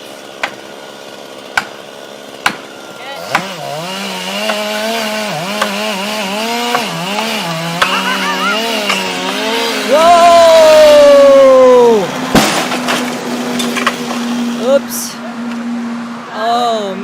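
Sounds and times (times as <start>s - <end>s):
chainsaw cutting wood: 0.0s - 11.0s, 12.1s - 14.7s
sharp knocks: 2.4s - 2.7s.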